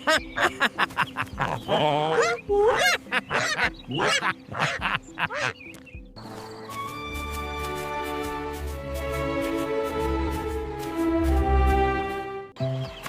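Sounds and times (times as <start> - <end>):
faint background music: 0.0 - 13.0
goose-like calls: 2.1 - 5.6.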